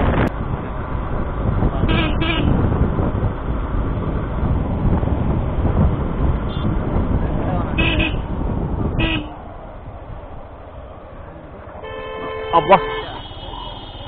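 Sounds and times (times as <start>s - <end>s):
wind rumble on microphone: 0.0s - 11.9s
motorcycle riding: 0.0s - 14.0s
horn tooting: 1.8s - 2.6s, 6.4s - 6.8s, 7.7s - 9.4s, 11.8s - 14.0s.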